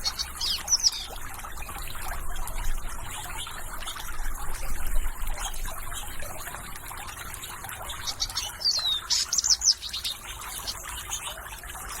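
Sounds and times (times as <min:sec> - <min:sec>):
birds chirping: 0:00.0 - 0:01.3, 0:06.0 - 0:12.0
water trickling: 0:00.0 - 0:12.0.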